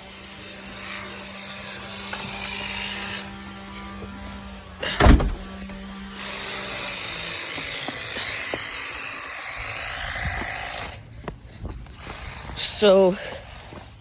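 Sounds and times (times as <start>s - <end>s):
loud thump: 5.0s - 5.8s.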